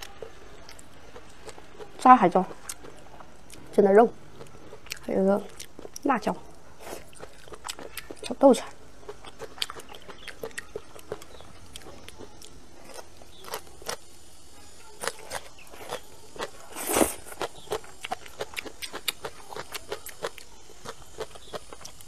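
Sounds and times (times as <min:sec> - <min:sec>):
chewing and crunching: 0:00.0 - 0:22.0
slurp: 0:16.7 - 0:17.4.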